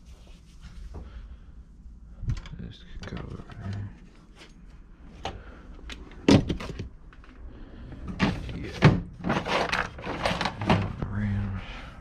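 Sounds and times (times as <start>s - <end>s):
hard objects knocking and thudding: 6.2s - 7.2s
clattering and rustling: 8.0s - 11.0s.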